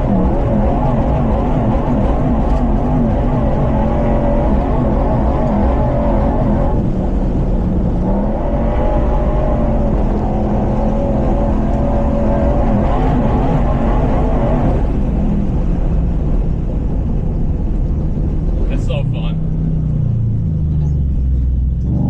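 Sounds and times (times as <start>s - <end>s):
rumble of driving noise: 0.0s - 22.0s.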